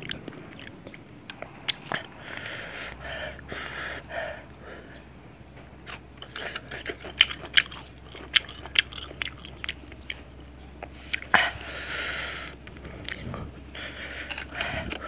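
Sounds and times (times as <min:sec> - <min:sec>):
crunchy chewing: 0:00.0 - 0:15.0
breathy hiss: 0:01.4 - 0:07.1, 0:10.3 - 0:15.0.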